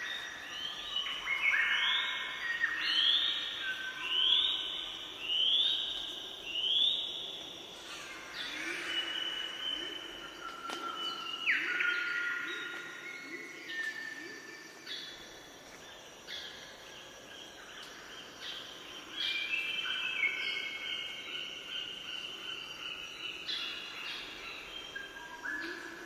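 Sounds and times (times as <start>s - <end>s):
birds singing: 0.0s - 15.3s.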